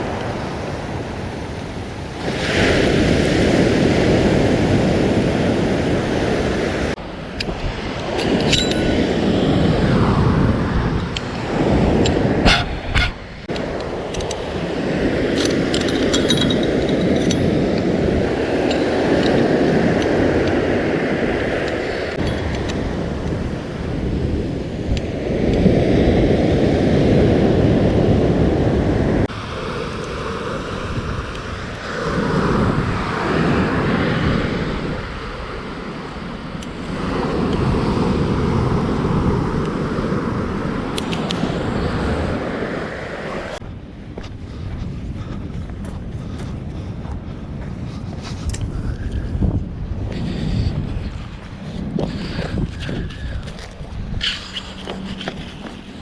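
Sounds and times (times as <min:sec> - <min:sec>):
surf breaking on beach: 0:00.0 - 0:15.7
wind on microphone: 0:00.0 - 0:56.0
light clinks of gear: 0:07.4 - 0:09.0, 0:15.3 - 0:17.8.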